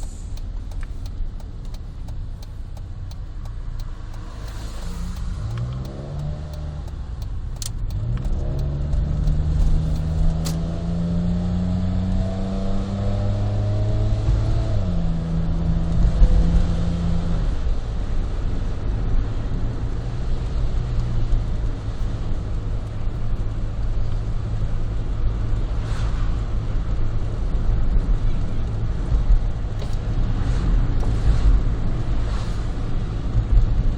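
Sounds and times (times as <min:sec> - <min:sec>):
sharp clicks: 0:00.0 - 0:10.7
car engine accelerating: 0:00.0 - 0:33.9.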